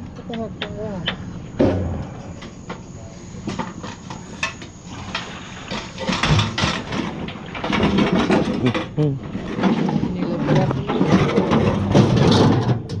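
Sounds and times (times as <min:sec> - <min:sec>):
scrap metal clanking: 0:03.4 - 0:13.0.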